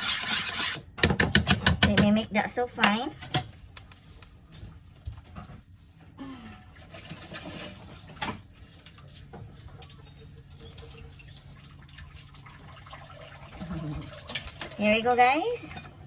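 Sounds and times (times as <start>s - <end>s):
wet stirring of batter: 0.0s - 1.0s.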